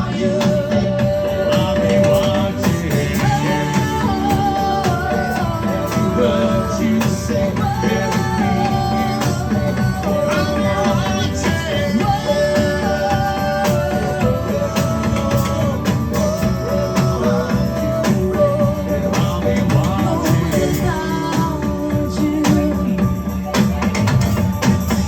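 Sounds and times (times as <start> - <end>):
steady percussion: 0.0 - 25.0.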